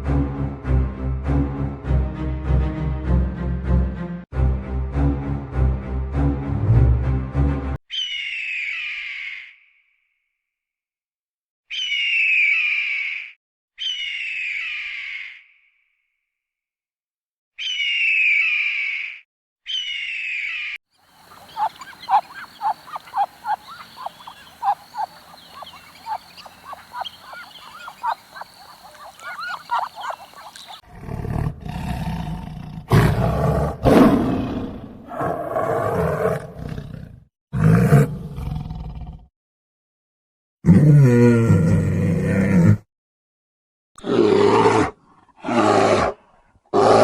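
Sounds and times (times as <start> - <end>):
quick repeated chirps: 21.1 - 30.8
brief high animal calls: 21.2 - 30.8.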